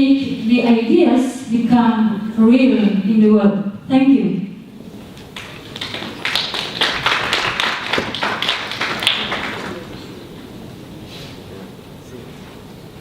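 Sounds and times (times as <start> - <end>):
small audience applauding: 5.2 - 10.4.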